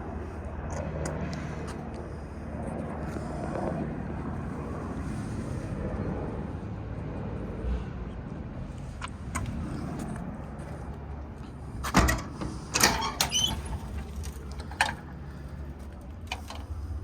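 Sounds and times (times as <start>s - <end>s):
steady low rumble: 0.0s - 12.8s
steel doors clanking shut: 11.8s - 15.1s.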